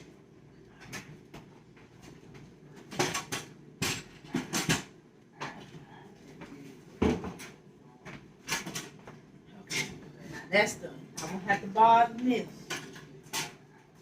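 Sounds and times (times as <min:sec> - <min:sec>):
dishes clattering: 0:12.6 - 0:13.7.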